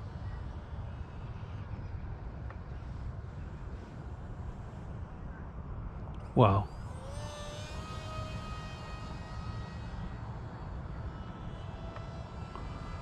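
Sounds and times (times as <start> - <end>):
model jet electric motors whining: 6.5 - 13.0.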